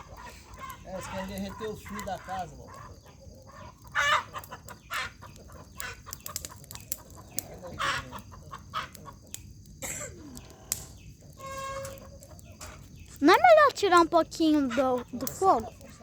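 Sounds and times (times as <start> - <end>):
chicken squawks: 0.0 - 9.2, 11.4 - 12.4
bonfire crackling and popping: 0.0 - 16.0
chickens clucking: 0.0 - 16.0.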